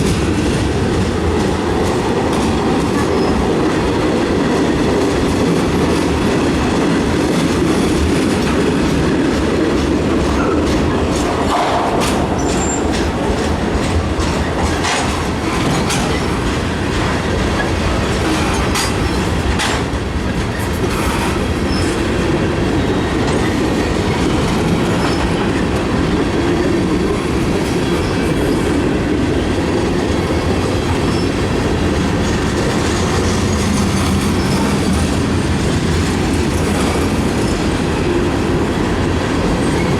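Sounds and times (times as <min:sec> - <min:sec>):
train wheels rumbling on rail: 0:00.0 - 0:39.9
clicks over rail joints: 0:08.4 - 0:22.0.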